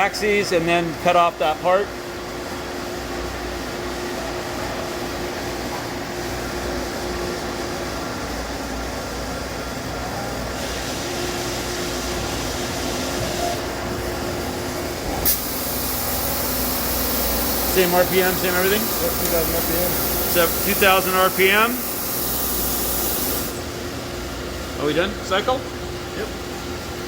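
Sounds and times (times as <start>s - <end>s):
lathe running with hum: 1.4s - 27.0s
loud hiss: 15.2s - 23.6s.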